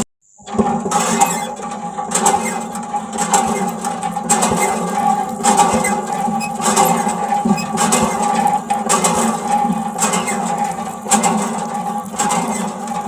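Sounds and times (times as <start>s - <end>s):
small motor running: 0.9s - 8.6s.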